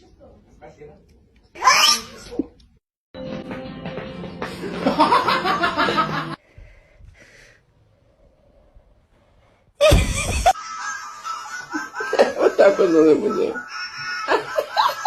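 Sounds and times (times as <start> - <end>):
person laughing: 9.8 - 15.0.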